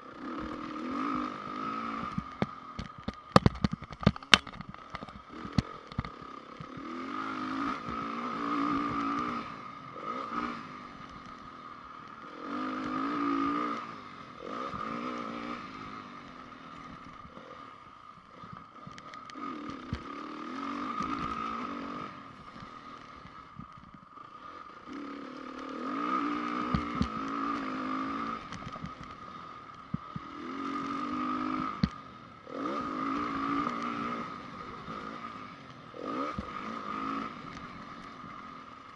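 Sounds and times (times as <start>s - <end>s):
motocross engine revving: 0.0s - 4.6s, 5.2s - 38.8s
bike knocks and clatter: 2.4s - 6.7s.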